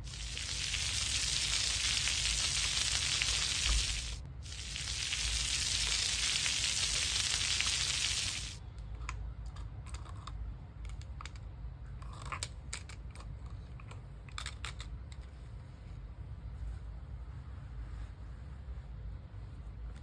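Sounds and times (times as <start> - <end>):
frying sizzle: 0.0 - 8.6.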